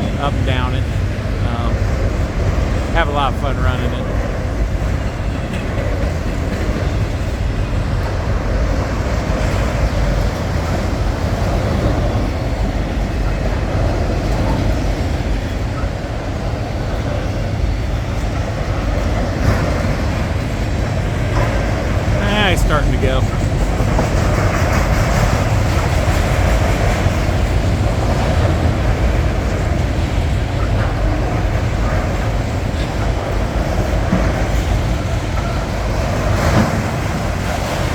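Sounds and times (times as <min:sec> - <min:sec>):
diesel locomotive rumbling: 0:00.0 - 0:37.9.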